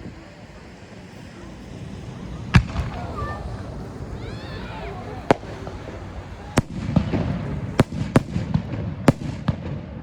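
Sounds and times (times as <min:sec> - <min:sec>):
small firework pops: 0:05.2 - 0:05.6, 0:06.5 - 0:10.0
firework shells bursting: 0:05.2 - 0:10.0.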